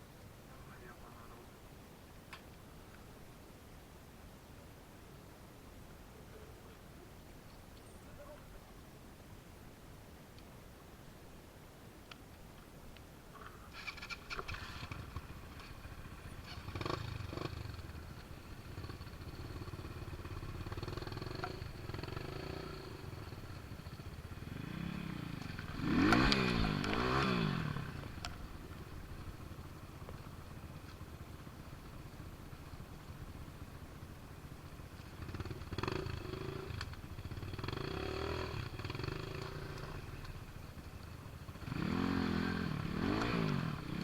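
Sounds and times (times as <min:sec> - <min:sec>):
motorcycle engine revving: 0:13.7 - 0:32.8, 0:34.7 - 0:44.0.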